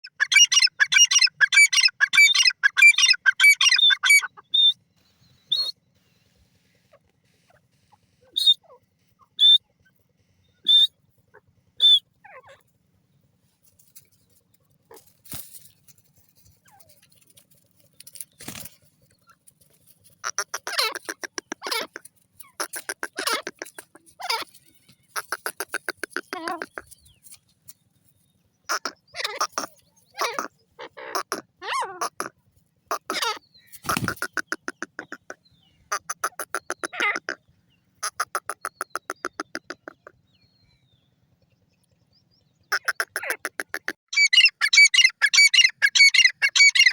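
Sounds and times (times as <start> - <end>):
francolin calling: 8.2 - 9.6, 10.4 - 12.6.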